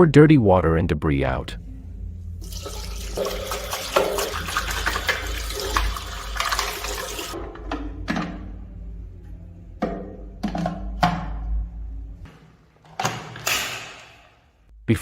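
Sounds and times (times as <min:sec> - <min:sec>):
dirty water pouring out: 0:02.4 - 0:07.4.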